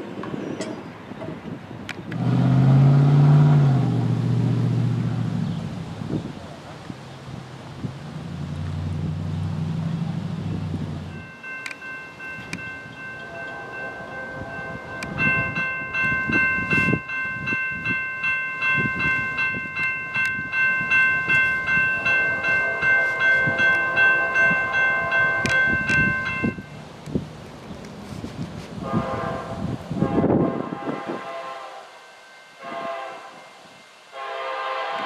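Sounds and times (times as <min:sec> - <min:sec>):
crossing signal bell ringing: 0:11.0 - 0:26.8
locomotive air horn: 0:13.2 - 0:15.1, 0:22.2 - 0:26.0, 0:28.8 - 0:32.0, 0:32.6 - 0:35.0.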